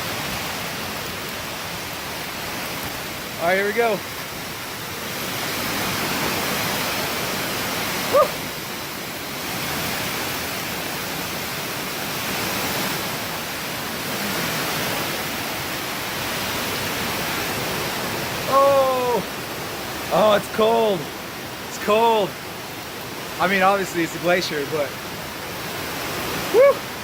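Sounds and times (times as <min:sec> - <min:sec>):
man saying woo: 0:08.1 - 0:08.4, 0:18.4 - 0:19.3, 0:26.5 - 0:26.9.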